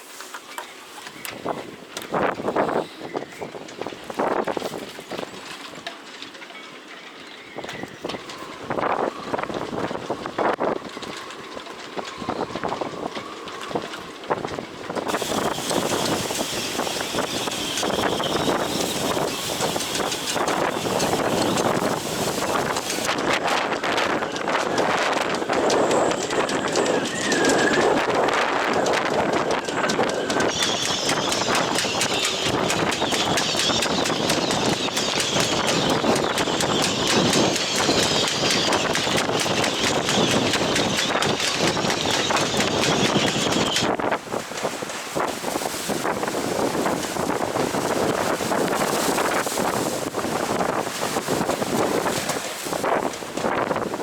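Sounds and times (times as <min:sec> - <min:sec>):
wind gusting over microphone: 0:01.1 - 0:05.8, 0:07.5 - 0:54.0
rapid flapping and clattering: 0:03.4 - 0:54.0
high whistle: 0:15.1 - 0:22.7, 0:26.1 - 0:28.4, 0:29.0 - 0:43.9.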